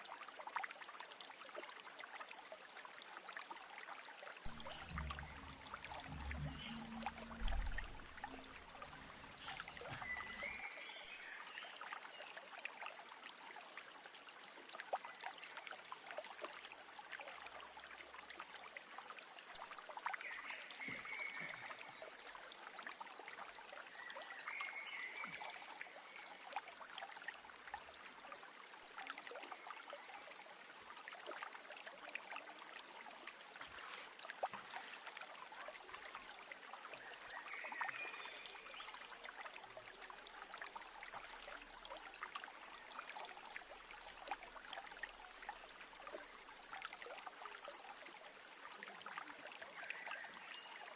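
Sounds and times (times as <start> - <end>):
stream trickling: 0.0 - 50.9
bird calling: 4.5 - 10.6.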